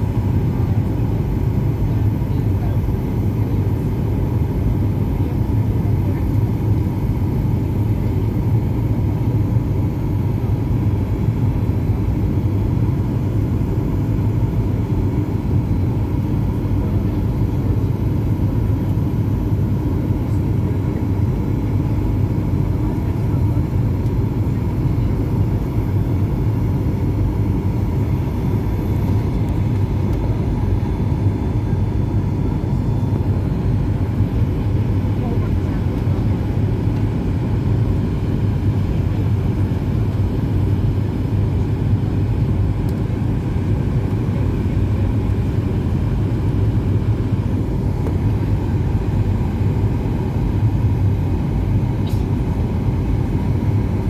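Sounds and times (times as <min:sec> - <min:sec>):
airplane cabin engine drone: 0:00.0 - 0:54.0.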